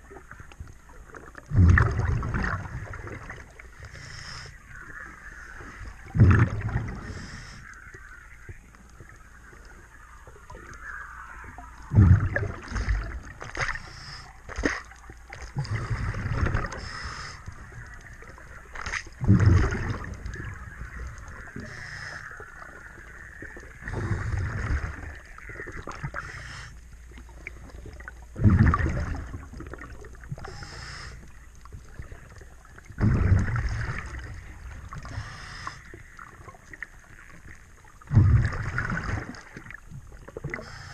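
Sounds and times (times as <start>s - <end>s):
exhaled bubbles underwater: 0.0s - 40.9s
regulator hiss: 35.1s - 36.0s.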